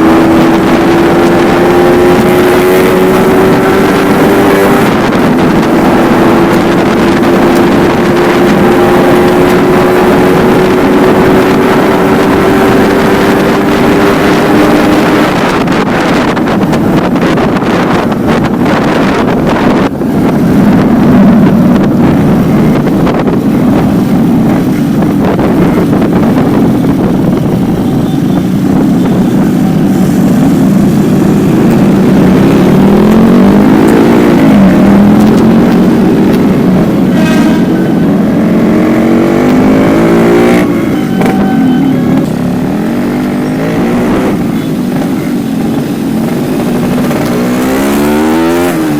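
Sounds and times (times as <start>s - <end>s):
motorcycle engine running: 0.0s - 48.9s
wind on microphone: 0.0s - 48.9s.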